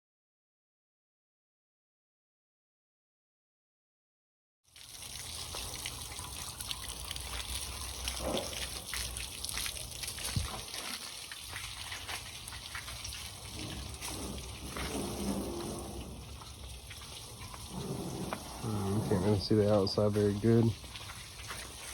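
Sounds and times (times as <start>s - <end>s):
small splashes: 4.7s - 21.9s
water spraying and trickling: 4.7s - 21.9s.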